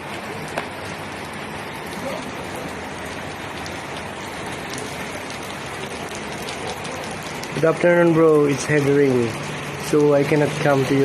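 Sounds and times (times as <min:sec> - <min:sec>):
heavy rain hissing: 0:00.0 - 0:11.0
rain drop ticks: 0:00.0 - 0:11.0.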